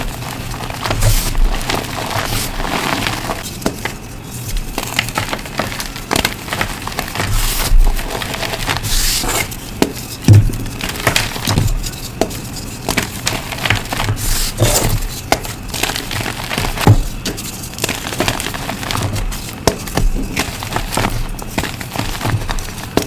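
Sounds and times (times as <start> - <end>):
chalk blocks crunching: 0.0 - 23.0
dull thuds: 9.8 - 15.6, 16.6 - 17.4.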